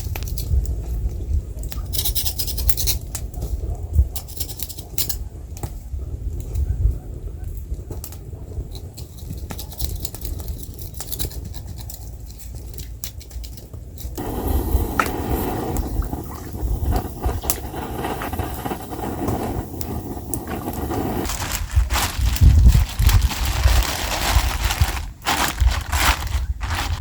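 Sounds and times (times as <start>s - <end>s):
wood fire crackling and popping: 12.5s - 27.0s.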